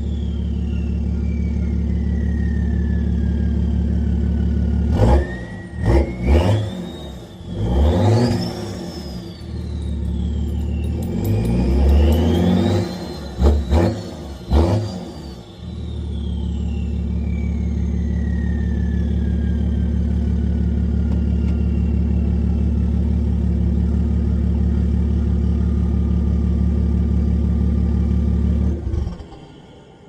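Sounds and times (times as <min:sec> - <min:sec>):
high whistle falling in pitch: 0:00.0 - 0:04.1, 0:08.2 - 0:22.8
diesel engine idling: 0:00.0 - 0:06.2, 0:08.6 - 0:14.6, 0:15.2 - 0:30.0.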